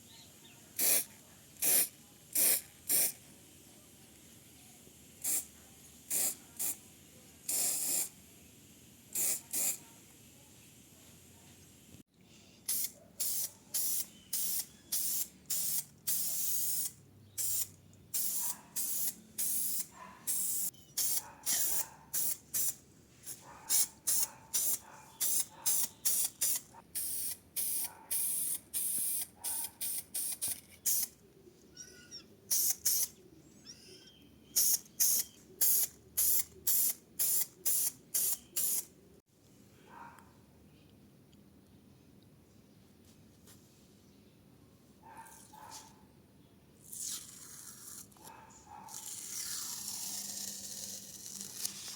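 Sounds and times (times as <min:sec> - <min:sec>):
spray nozzle hissing in bursts: 0:00.8 - 0:03.2, 0:05.2 - 0:06.8, 0:07.5 - 0:08.2, 0:09.1 - 0:09.9, 0:12.7 - 0:22.8, 0:23.7 - 0:31.1, 0:32.5 - 0:33.1, 0:34.6 - 0:38.9.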